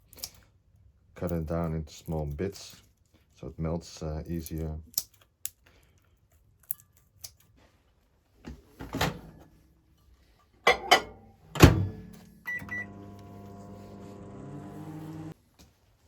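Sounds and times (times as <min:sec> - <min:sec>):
microwave door closing thunk: 0:11.6 - 0:12.0
microwave oven humming: 0:11.6 - 0:15.4
keypad beeps: 0:12.5 - 0:13.0.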